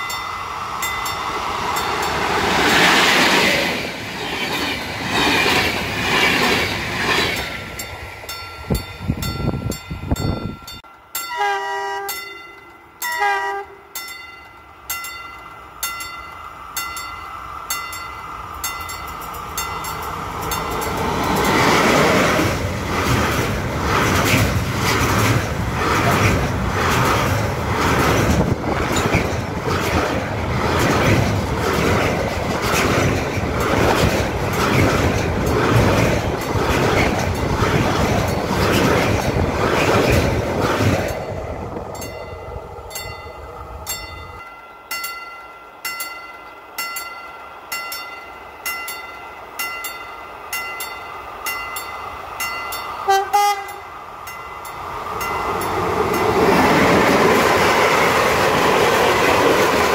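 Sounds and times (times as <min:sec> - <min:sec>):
freight train wheels clattering: 0:00.0 - 0:11.0, 0:14.0 - 0:44.6
electric train passing: 0:00.0 - 0:59.9
train horn blasts: 0:11.3 - 0:14.0, 0:53.0 - 0:53.9.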